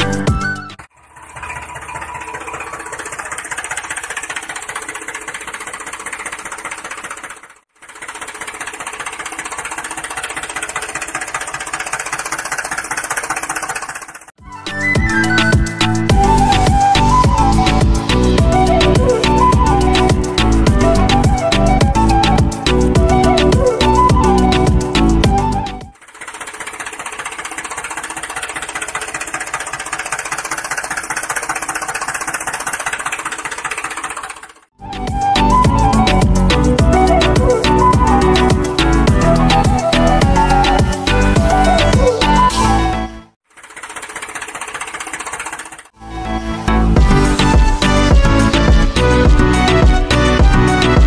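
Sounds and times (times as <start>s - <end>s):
small electric motor rattling: 0.8s - 14.4s, 25.5s - 34.7s, 43.4s - 46.0s.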